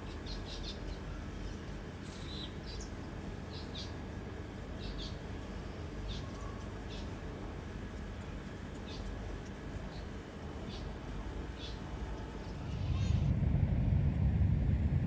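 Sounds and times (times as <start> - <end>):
low background noise: 0.0 - 13.0
bird chirping: 11.5 - 12.6.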